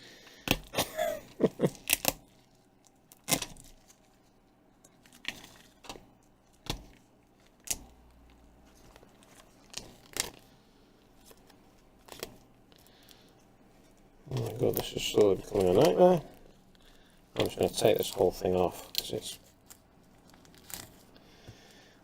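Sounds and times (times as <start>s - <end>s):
plastic film crinkling and peeling: 0.5s - 21.2s.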